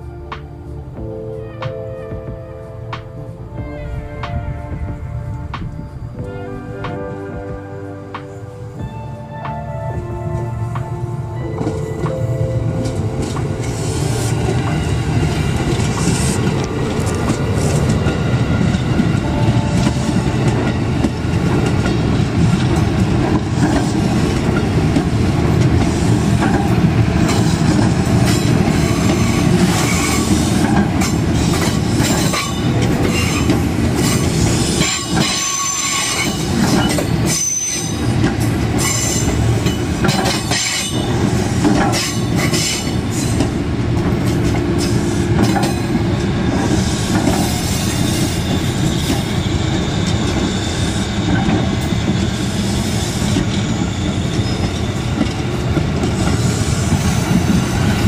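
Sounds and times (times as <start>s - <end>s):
rumble of train wheels on rail: 0.0s - 58.0s
high-pitched wheel squeal: 46.6s - 55.2s.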